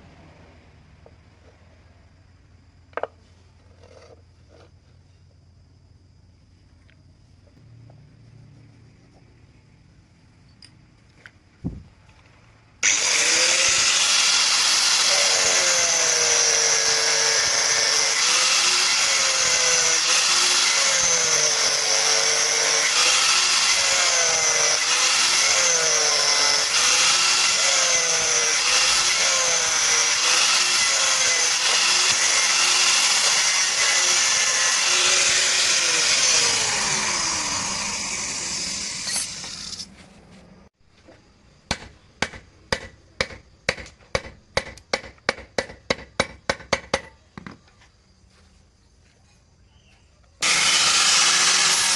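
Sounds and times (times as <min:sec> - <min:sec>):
electric power tool cutting wood: 0:12.8 - 0:39.9, 0:50.4 - 0:51.9.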